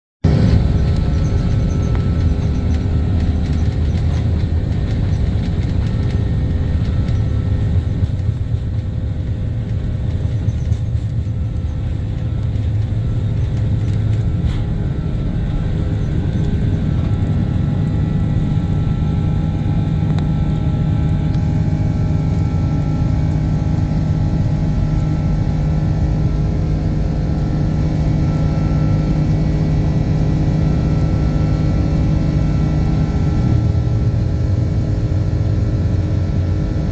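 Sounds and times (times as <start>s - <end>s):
airplane cabin rumble: 0.2s - 36.9s.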